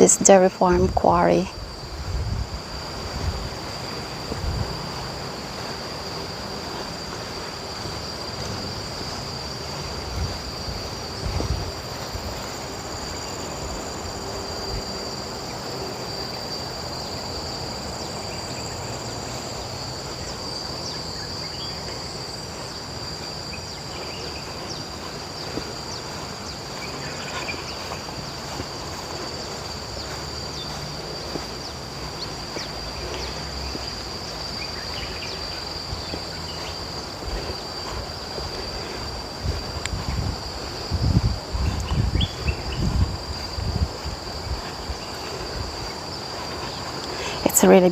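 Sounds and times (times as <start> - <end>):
insects droning: 0.0 - 47.9
wind rumble on microphone: 0.0 - 47.9.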